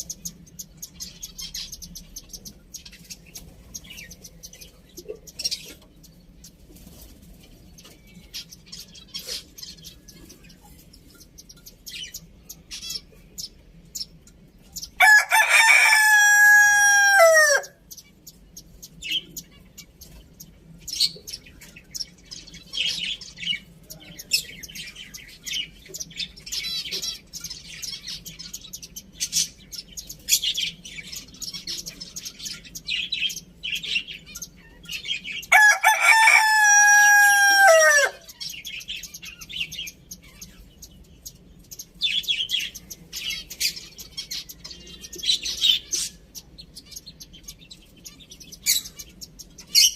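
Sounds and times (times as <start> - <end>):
small birds chirping: 0.0 - 49.9
rooster crowing: 15.0 - 17.8, 35.5 - 38.3.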